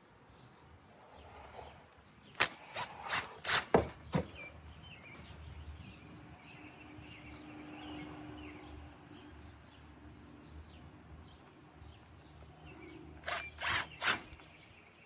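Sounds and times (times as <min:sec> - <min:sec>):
birds chirping: 0:00.0 - 0:15.0
sharp clicks and knocks of tools: 0:02.3 - 0:04.3.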